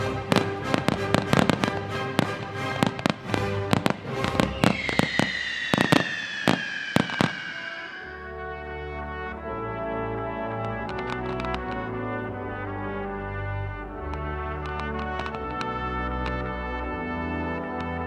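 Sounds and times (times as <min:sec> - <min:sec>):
brass music: 0:00.0 - 0:05.9, 0:06.5 - 0:18.0
fireworks bangs and cracks: 0:00.2 - 0:08.6, 0:10.6 - 0:11.9, 0:14.1 - 0:16.4
falling whistle: 0:04.2 - 0:08.4.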